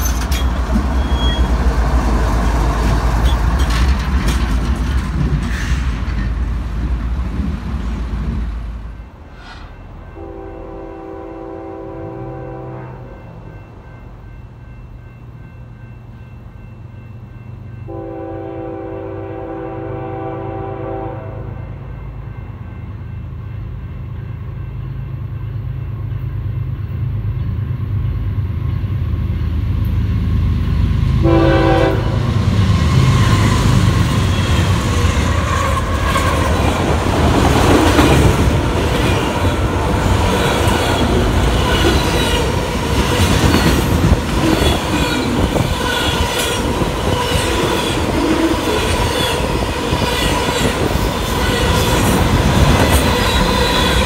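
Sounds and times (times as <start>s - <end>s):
train wheels clacking on rail joints: 0.0s - 8.5s, 32.6s - 54.0s
train engine rumble: 0.0s - 54.0s
train horn: 9.4s - 13.3s, 17.9s - 22.0s, 31.2s - 33.5s.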